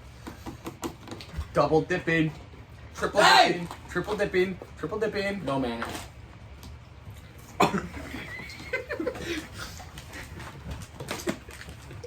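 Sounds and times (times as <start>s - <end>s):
person coughing: 7.6s - 8.2s.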